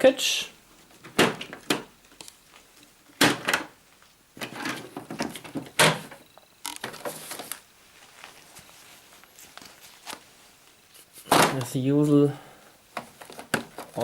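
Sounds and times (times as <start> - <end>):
packaging scraping and rustling: 6.7 - 11.3.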